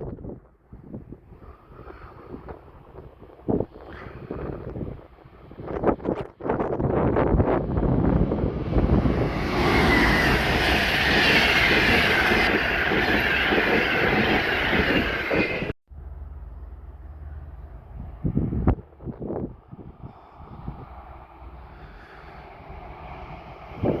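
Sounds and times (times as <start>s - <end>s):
train wheels rumbling on rails: 1.3s - 24.0s
wavering wheel squeal: 8.6s - 15.8s.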